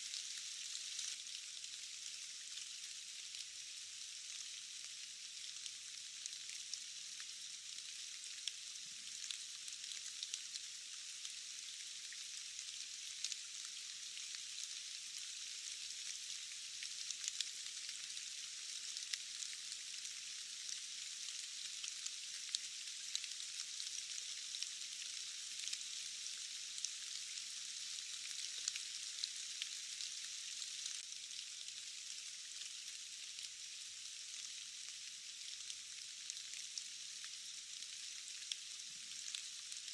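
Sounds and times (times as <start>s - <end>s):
sharp ticks of raindrops: 0.0s - 39.9s
steady rain hissing: 0.0s - 39.9s.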